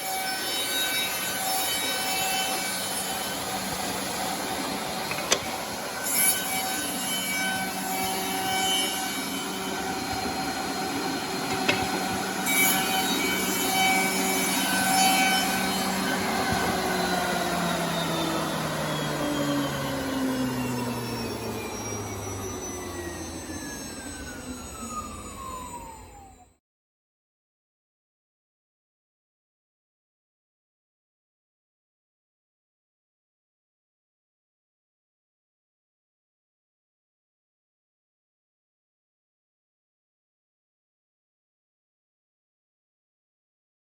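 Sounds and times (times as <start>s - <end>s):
machine motors whirring: 0.0s - 26.5s.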